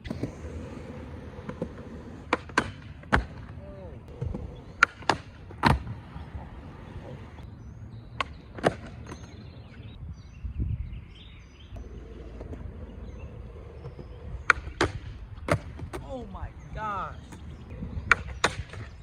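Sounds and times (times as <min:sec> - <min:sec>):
birds chirping faintly: 0:00.0 - 0:19.0
skateboard clacks on concrete: 0:01.4 - 0:05.9, 0:13.8 - 0:16.1, 0:18.0 - 0:19.0.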